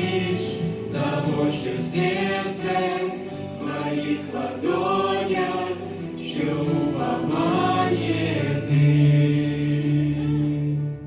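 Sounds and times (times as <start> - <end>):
church choir singing: 0.0 - 11.0
musical accompaniment: 0.0 - 11.0.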